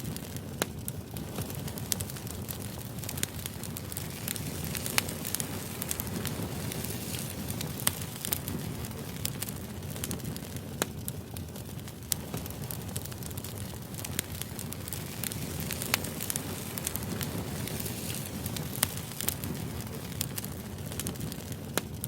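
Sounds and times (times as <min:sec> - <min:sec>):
fire burning: 0:00.0 - 0:22.0
firewood crackling and popping: 0:00.0 - 0:22.0.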